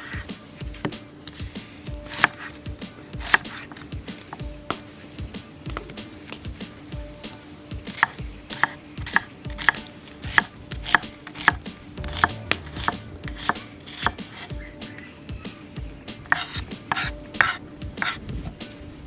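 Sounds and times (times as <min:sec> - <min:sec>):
knife chopping on a board: 0:00.0 - 0:04.8, 0:07.8 - 0:15.1, 0:16.2 - 0:18.6.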